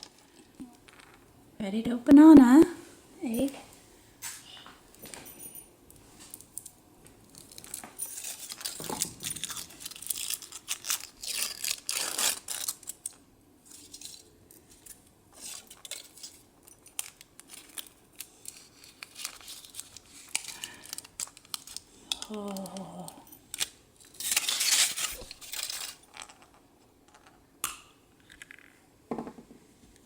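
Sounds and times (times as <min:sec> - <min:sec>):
foil wrapper crinkling: 0:07.3 - 0:22.9, 0:23.5 - 0:26.6.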